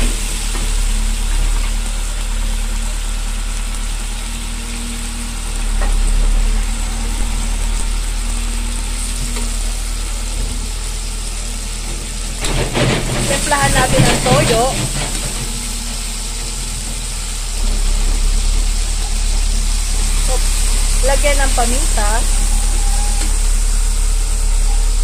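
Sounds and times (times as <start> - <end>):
food sizzling in a wok: 0.0 - 25.0
steady low hum: 0.0 - 25.0.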